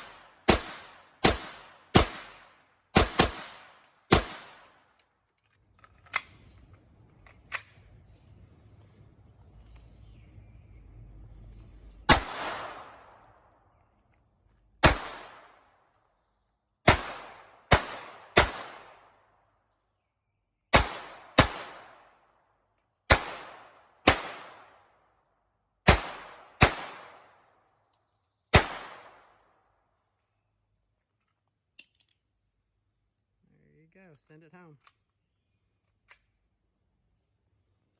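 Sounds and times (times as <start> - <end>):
pistol shots: 0.0 - 4.9, 12.1 - 13.4, 14.8 - 15.7, 16.9 - 19.1, 20.7 - 22.1, 23.1 - 24.8, 25.8 - 27.3, 28.5 - 29.3.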